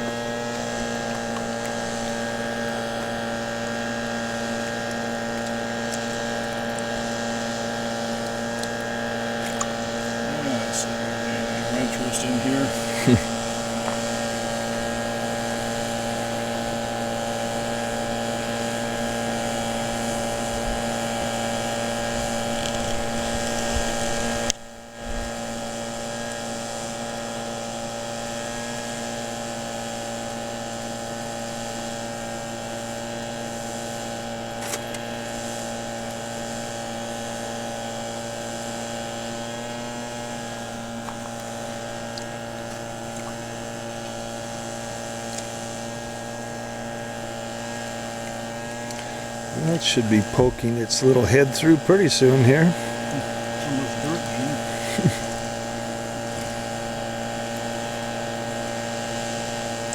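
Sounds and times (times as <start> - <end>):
small gas engine running: 0.0 - 59.9.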